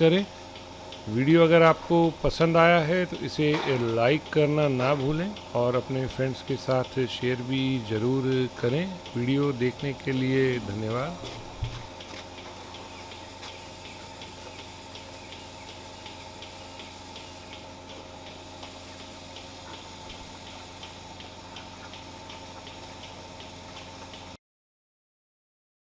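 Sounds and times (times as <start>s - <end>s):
light regular ticking: 0.0s - 24.4s
steady machine hum: 0.0s - 24.4s.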